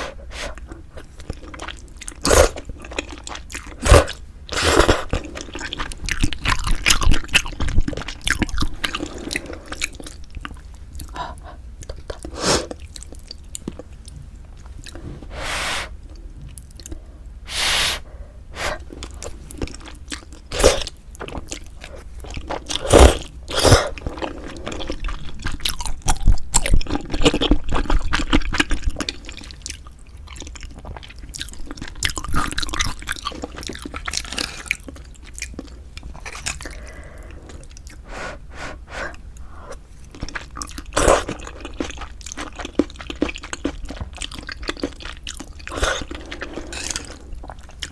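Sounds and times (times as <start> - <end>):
wet chewing: 0.0 - 15.0, 18.6 - 38.1, 39.1 - 47.9.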